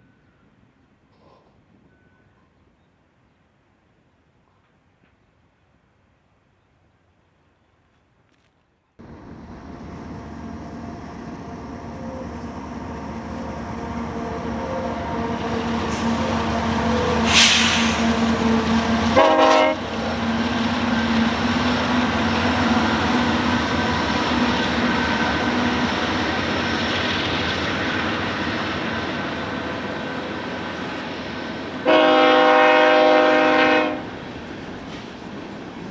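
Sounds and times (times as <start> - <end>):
freight train approaching: 9.0 - 35.9
loud burst: 17.2 - 18.5
short harsh sound: 17.2 - 18.5.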